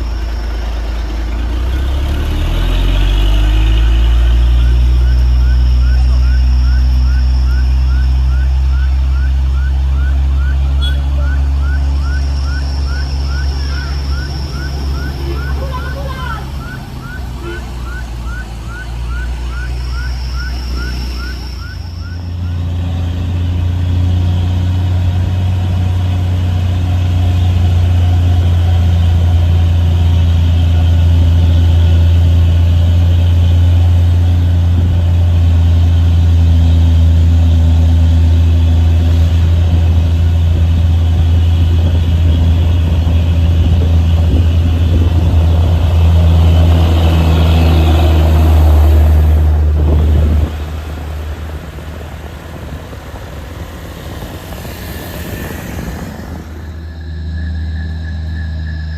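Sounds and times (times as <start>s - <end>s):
rising electronic chirps: 0.0s - 24.1s, 56.1s - 58.9s
heavy vehicle engine drone: 0.0s - 58.9s.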